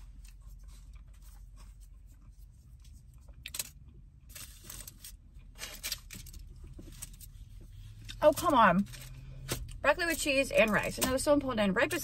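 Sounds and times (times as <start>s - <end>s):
food containers rustling and clicking: 0.0s - 11.4s
low hum inside car: 0.0s - 12.0s.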